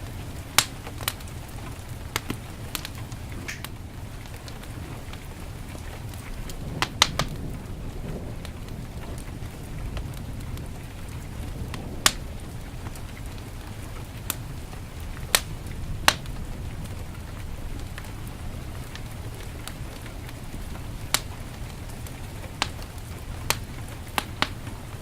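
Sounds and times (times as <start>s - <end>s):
heavy rain: 0.0s - 25.0s
wood fire crackling and popping: 0.0s - 25.0s.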